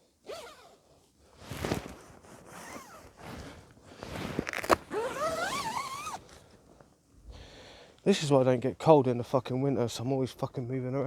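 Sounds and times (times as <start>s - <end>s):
zip-like scraping: 0.3s - 0.7s, 1.4s - 6.2s
gear rustling: 1.5s - 6.2s.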